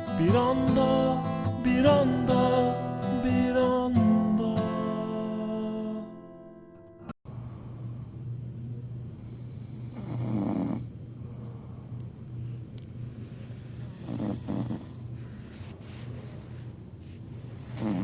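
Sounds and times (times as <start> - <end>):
steady low hum: 7.3 - 18.0
person snoring: 9.6 - 10.9, 13.9 - 15.0, 17.6 - 18.0.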